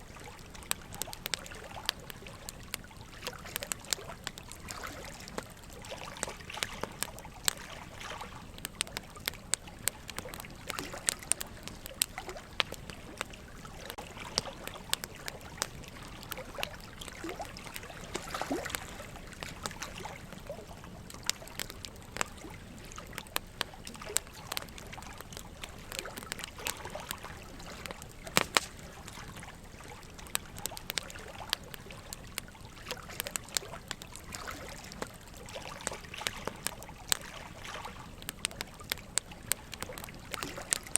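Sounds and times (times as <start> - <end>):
running water trickling: 0.0 - 40.9
wood fire crackling and popping: 0.0 - 40.9.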